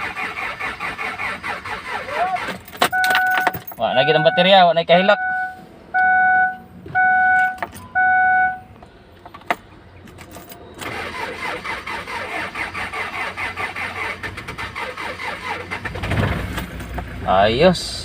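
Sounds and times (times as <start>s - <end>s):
diesel engine cranking: 0.0s - 18.0s
short steady beeps: 2.9s - 8.7s.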